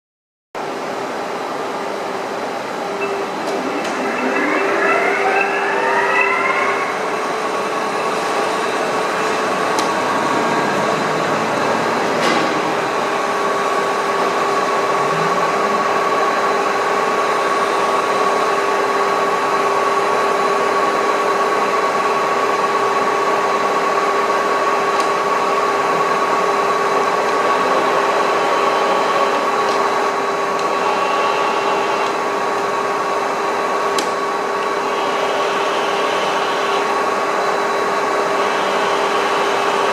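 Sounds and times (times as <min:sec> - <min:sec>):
lathe spindle drive whining: 0:01.2 - 0:39.9.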